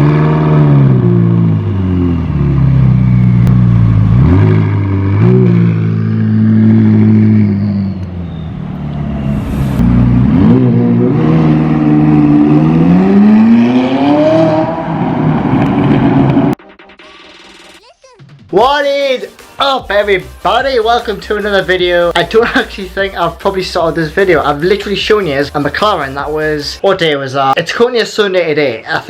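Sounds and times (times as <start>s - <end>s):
car engine revving hard: 0.0s - 16.5s.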